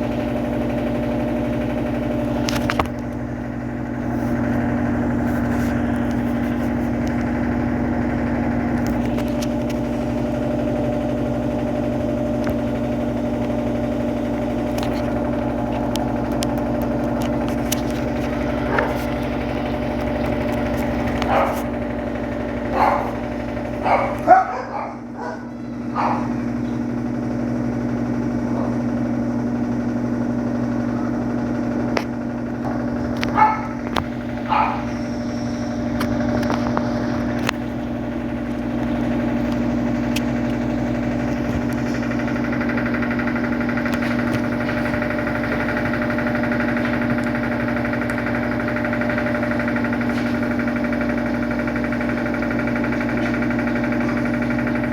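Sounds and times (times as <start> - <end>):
high whine: 0.0 - 28.6, 32.0 - 54.9
washing machine spinning: 0.0 - 54.9.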